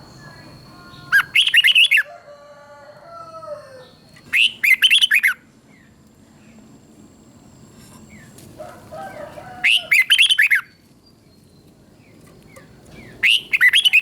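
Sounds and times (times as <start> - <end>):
bird singing warbled phrases: 0.0 - 2.1, 3.8 - 6.7, 9.1 - 14.0
soft bird whistling notes: 4.1 - 5.4, 13.0 - 14.0.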